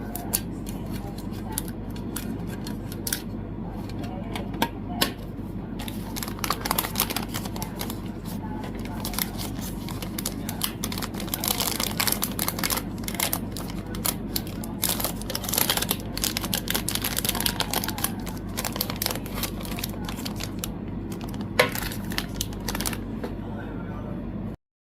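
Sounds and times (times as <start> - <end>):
plastic packaging crinkling: 5.8 - 23.1.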